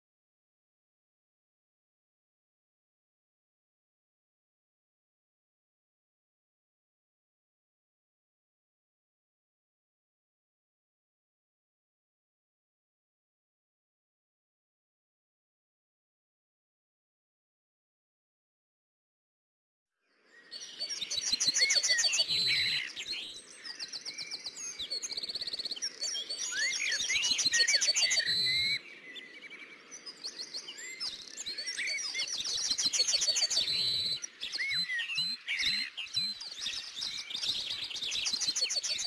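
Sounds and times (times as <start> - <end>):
songbirds chirping and singing: 20.0 - 39.0.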